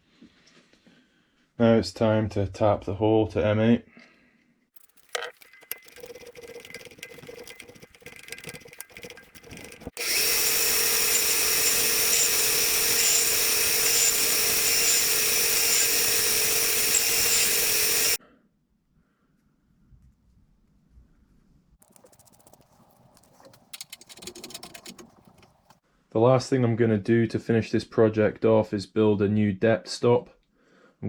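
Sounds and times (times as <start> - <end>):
metal hand tools ticking and scraping: 4.8 - 18.2, 21.8 - 25.8
power tool motor whine: 10.0 - 18.2.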